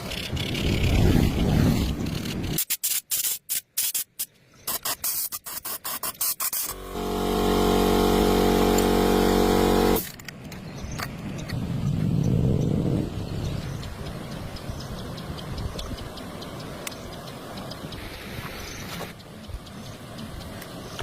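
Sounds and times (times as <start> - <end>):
small motor buzzing: 5.5 - 10.0.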